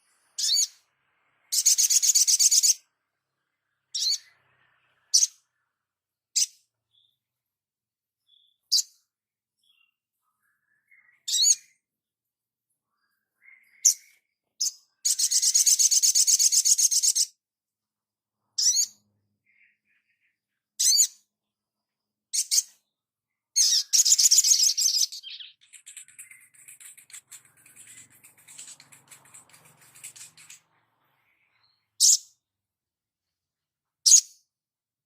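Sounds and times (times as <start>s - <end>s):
high bird chirps: 0.0s - 7.2s, 8.2s - 11.8s, 12.9s - 17.4s, 18.6s - 21.3s, 22.3s - 32.5s
fast bird trill: 1.5s - 2.9s, 13.8s - 17.3s, 23.6s - 32.4s.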